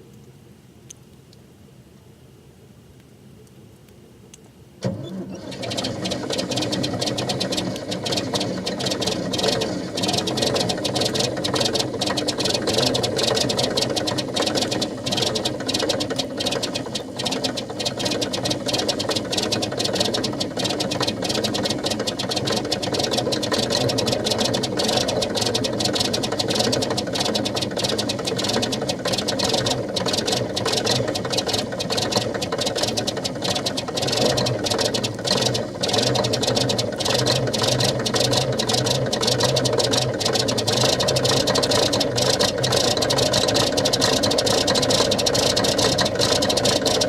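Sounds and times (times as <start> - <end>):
diesel engine clattering: 4.8 - 47.0.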